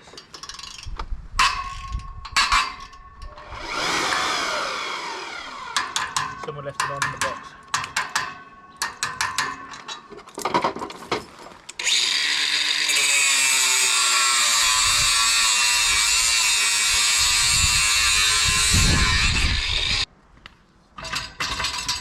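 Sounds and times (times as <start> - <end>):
electric jackhammer breaking concrete: 3.6 - 6.0.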